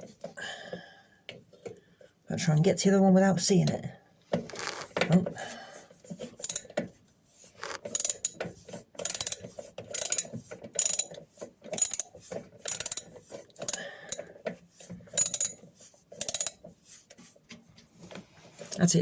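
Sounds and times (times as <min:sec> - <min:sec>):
socket ratchet clicking: 0:06.4 - 0:06.7, 0:07.8 - 0:08.4, 0:09.0 - 0:11.2, 0:11.8 - 0:12.1, 0:12.7 - 0:14.3, 0:15.2 - 0:15.6, 0:16.2 - 0:16.6.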